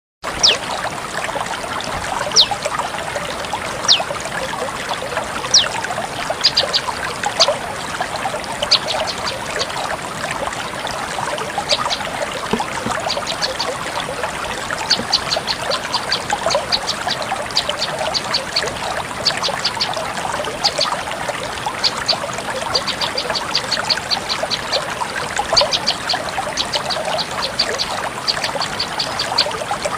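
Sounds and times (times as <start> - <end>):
trickling water: 0.2 - 29.9
bird calling high notes: 0.3 - 0.6, 2.3 - 2.6, 3.8 - 4.1, 5.5 - 5.8.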